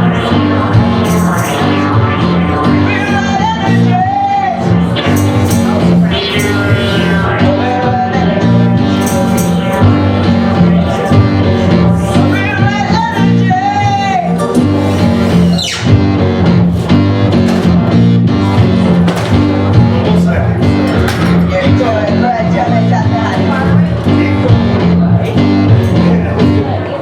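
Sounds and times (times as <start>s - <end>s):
live band music: 0.0s - 26.7s.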